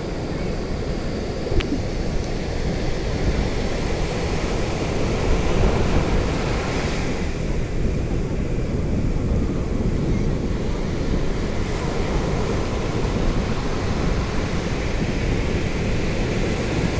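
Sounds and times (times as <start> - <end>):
sea waves washing: 0.0 - 16.9
wind rumbling on microphone: 0.0 - 16.9.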